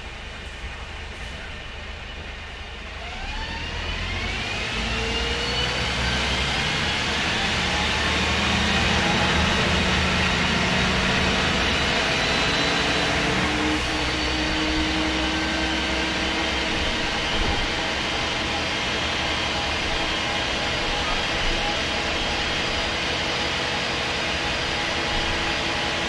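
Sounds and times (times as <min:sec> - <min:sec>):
bus engine drone: 0:00.0 - 0:26.0
transmission whine: 0:00.0 - 0:26.0.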